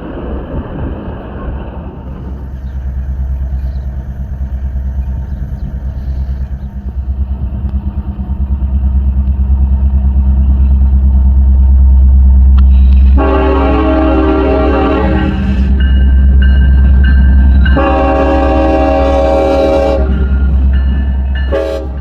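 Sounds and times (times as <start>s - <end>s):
diesel locomotive engine rumble: 0.0s - 22.0s
locomotive air horn: 12.6s - 16.0s, 17.6s - 20.8s, 21.4s - 22.0s.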